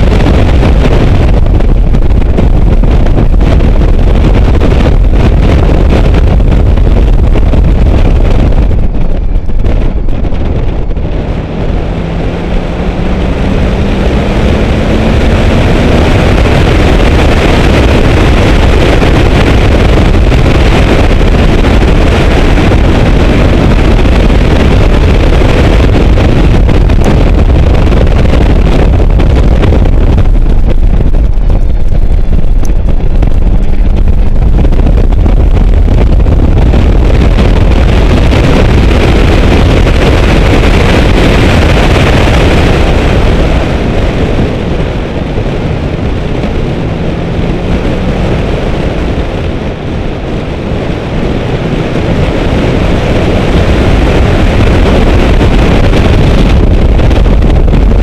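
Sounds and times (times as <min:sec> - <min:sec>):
car engine running hard: 0:00.0 - 0:58.0
wind buffeting microphone: 0:00.0 - 0:58.0.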